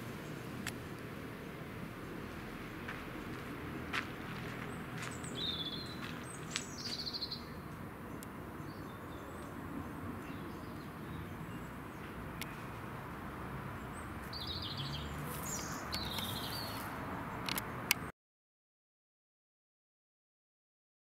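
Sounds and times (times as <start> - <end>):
low outdoor background noise: 0.0 - 18.1
songbirds chirping: 0.0 - 18.1
sharp clicks: 17.4 - 18.1.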